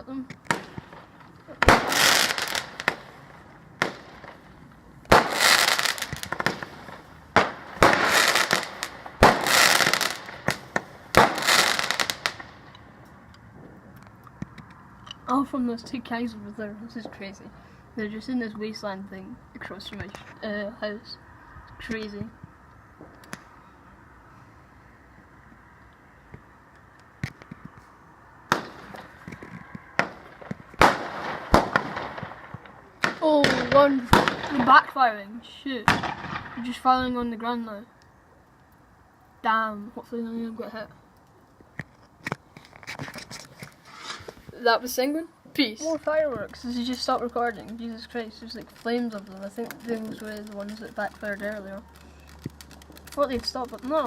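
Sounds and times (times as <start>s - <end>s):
fireworks crackling: 0.1s - 13.2s, 28.4s - 37.7s, 39.5s - 54.0s
fireworks bangs: 0.4s - 12.8s, 28.5s - 35.2s, 35.8s - 37.0s, 45.8s - 54.0s.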